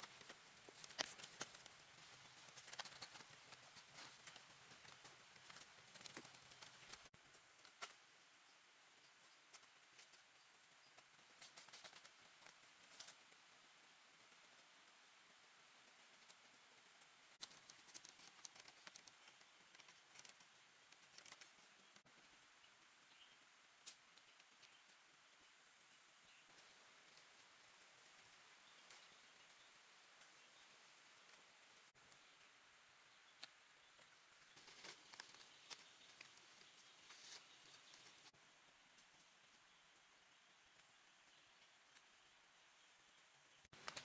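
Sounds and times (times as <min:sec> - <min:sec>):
faint steady hiss: 0:00.0 - 0:44.0
small sharp clicks and ticks: 0:00.0 - 0:44.0.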